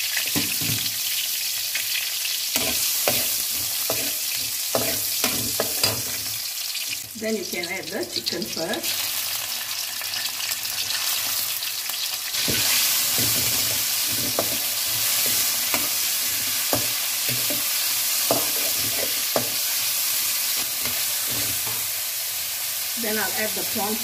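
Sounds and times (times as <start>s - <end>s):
chicken sizzling in a wok: 0.0s - 24.0s
metal spatula scraping a pan: 2.6s - 6.3s, 12.4s - 19.9s, 20.5s - 21.9s.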